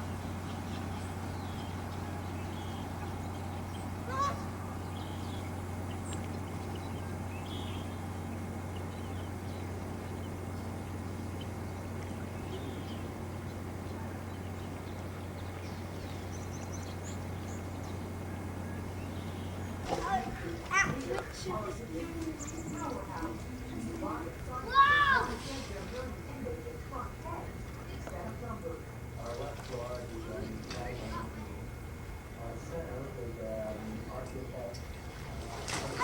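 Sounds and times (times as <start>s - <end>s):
bird call: 0.0s - 21.4s
steady low hum: 0.0s - 36.0s.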